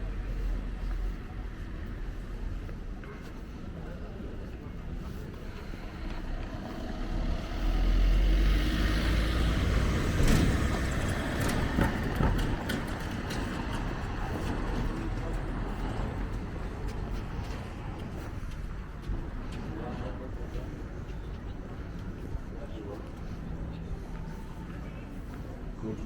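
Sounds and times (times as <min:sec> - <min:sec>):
car passing by: 0:05.8 - 0:13.5.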